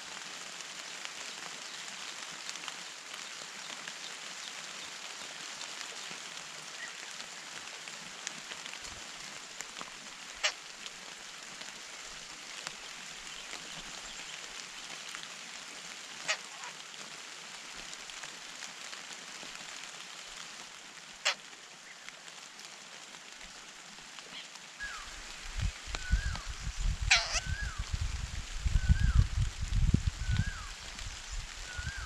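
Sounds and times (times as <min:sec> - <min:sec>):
steady hiss: 0:00.0 - 0:32.0
harsh bird calls: 0:26.0 - 0:27.8.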